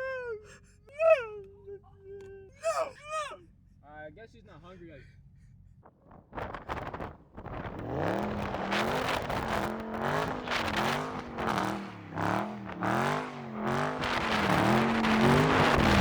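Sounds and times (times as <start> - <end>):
car engine revving: 5.8 - 16.0.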